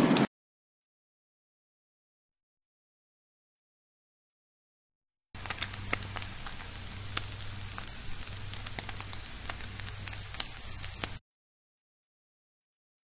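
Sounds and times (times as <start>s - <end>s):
chicken sizzling in a skillet: 5.4s - 11.2s
low hum: 5.4s - 11.2s.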